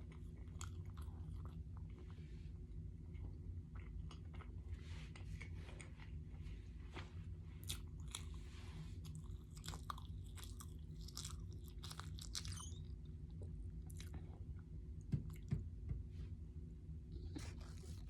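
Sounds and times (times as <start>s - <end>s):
person chewing food: 0.0s - 2.2s, 3.0s - 6.3s, 7.6s - 12.7s, 13.3s - 14.6s.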